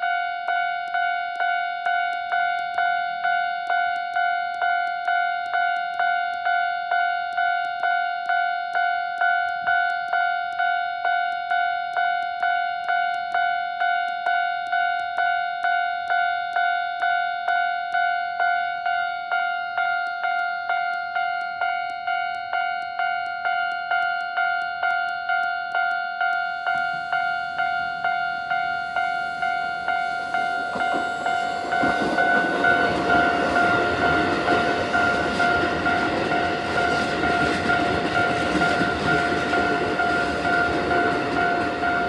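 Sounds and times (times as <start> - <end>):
level crossing warning bell: 0.0 - 42.0.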